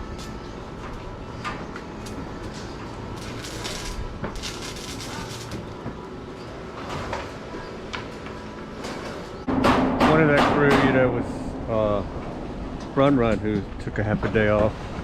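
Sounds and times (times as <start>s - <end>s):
low construction rumble: 0.0s - 15.0s
short hissing crackles: 3.1s - 5.6s
knocks and clanks: 6.8s - 14.9s.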